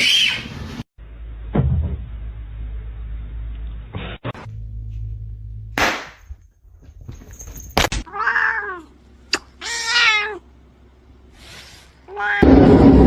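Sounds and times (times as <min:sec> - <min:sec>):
cat meowing: 0:08.1 - 0:08.9, 0:09.6 - 0:10.4, 0:12.1 - 0:12.4.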